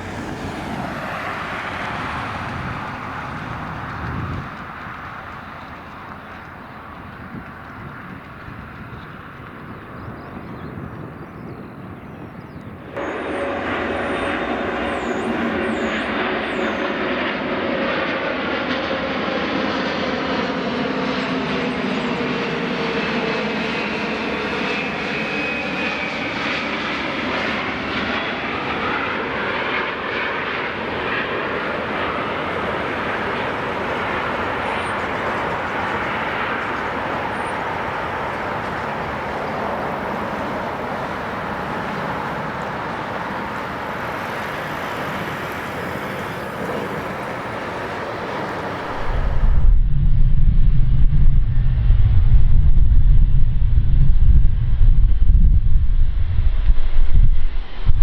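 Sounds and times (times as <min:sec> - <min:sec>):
jet airliner engine roar: 0:00.0 - 0:58.0
whistling tones sliding in pitch: 0:13.0 - 0:17.0.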